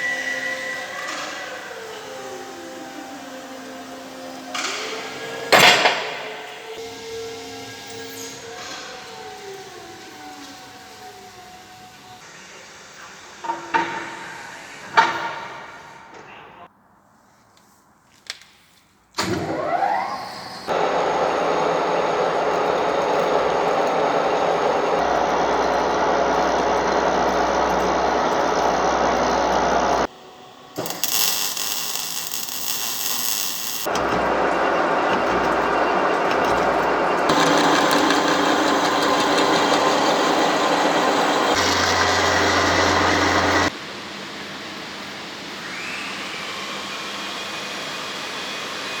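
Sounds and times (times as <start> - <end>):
high hissy crackle: 20.7 - 33.9
metalworking machinery running: 20.7 - 43.8.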